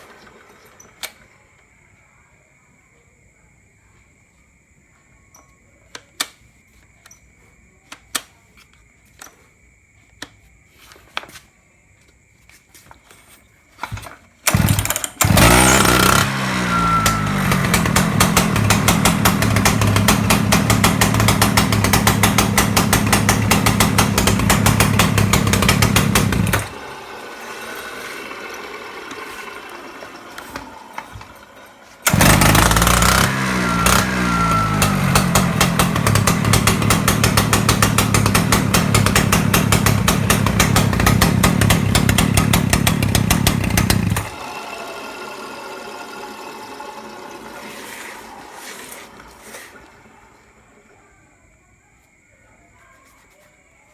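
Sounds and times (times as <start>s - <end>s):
concrete cutter engine running: 13.9s - 51.0s.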